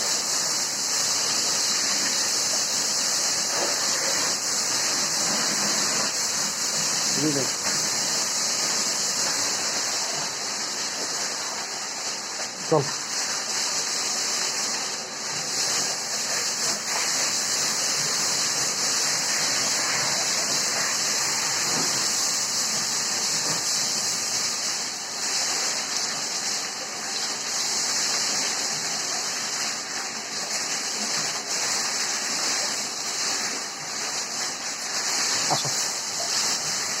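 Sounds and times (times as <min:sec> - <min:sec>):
water spray rushing: 0:00.0 - 0:37.0.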